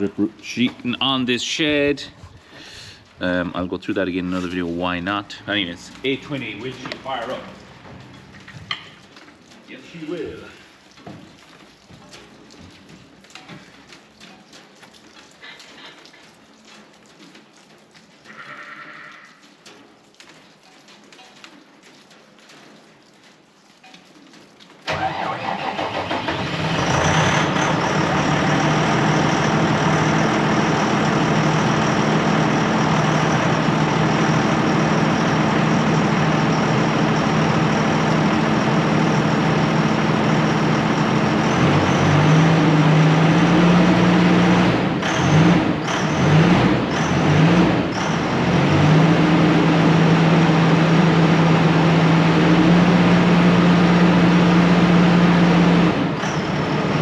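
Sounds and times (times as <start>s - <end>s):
diesel tractor engine running: 0.0s - 10.7s, 24.9s - 57.0s.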